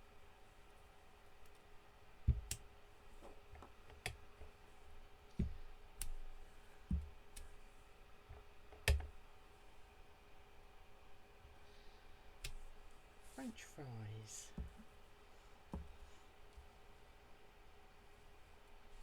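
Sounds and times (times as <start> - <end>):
soft thumps: 15.7 - 16.1.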